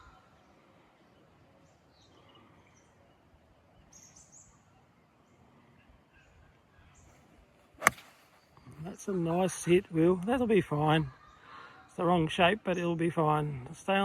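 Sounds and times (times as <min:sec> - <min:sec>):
faint bird chirps: 0:00.0 - 0:09.0.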